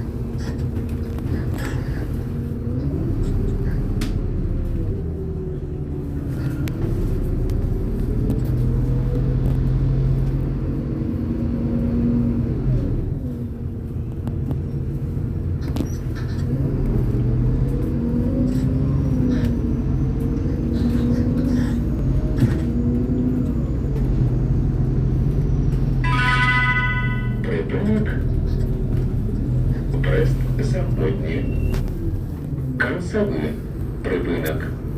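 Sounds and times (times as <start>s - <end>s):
bus engine running: 0.0s - 34.9s
short electronic chime: 26.0s - 27.4s.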